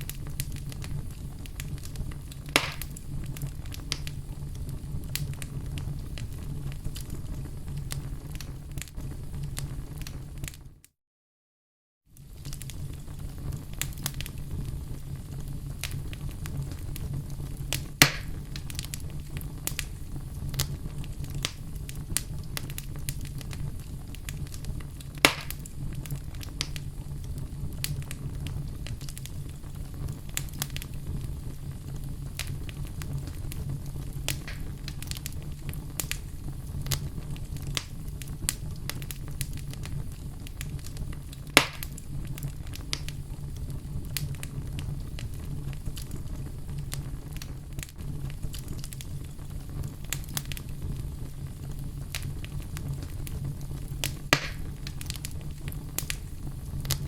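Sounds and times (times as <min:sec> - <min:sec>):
burning wood popping: 0:00.0 - 0:10.6, 0:12.2 - 0:57.0
wood fire crackling: 0:00.0 - 0:10.8, 0:12.1 - 0:57.0.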